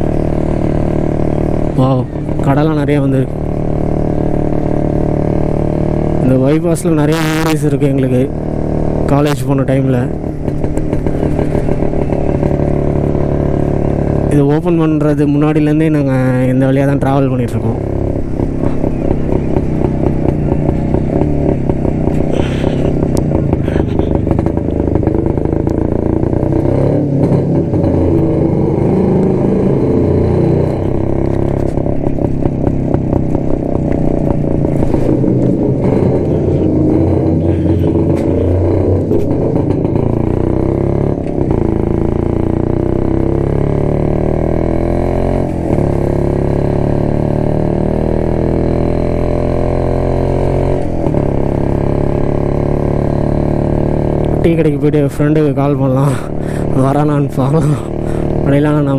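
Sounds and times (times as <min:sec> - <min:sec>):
two-stroke motorcycle engine running: 0:00.0 - 0:58.9.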